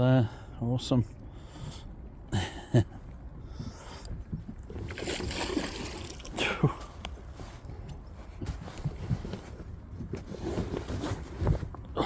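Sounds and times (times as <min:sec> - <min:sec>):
water splashing: 0:04.8 - 0:06.6.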